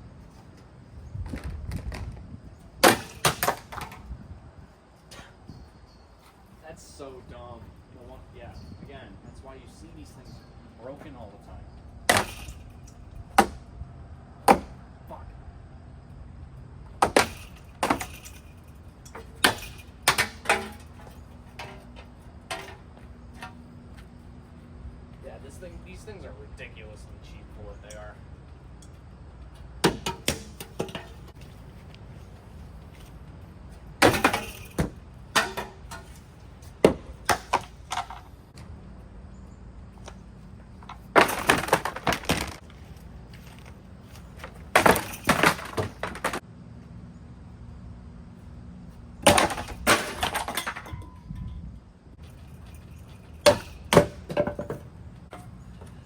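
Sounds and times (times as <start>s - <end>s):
sharp cracking and clattering: 40.8s - 46.4s.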